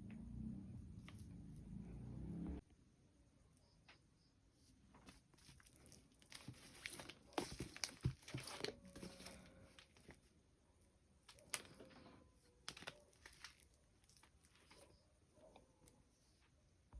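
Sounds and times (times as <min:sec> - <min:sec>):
plastic packaging crinkling: 0:05.1 - 0:10.2, 0:11.3 - 0:14.9.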